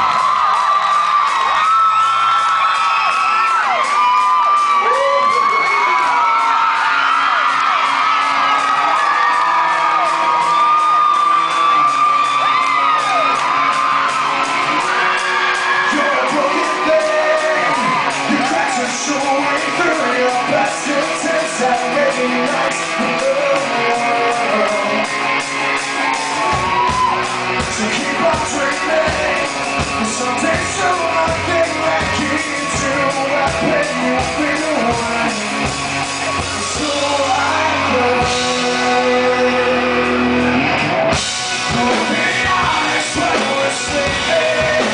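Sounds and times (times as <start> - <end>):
audience whoops and shouts: 0.0 - 44.9
live rock band: 0.0 - 44.9
man singing: 14.7 - 25.2, 27.6 - 44.9.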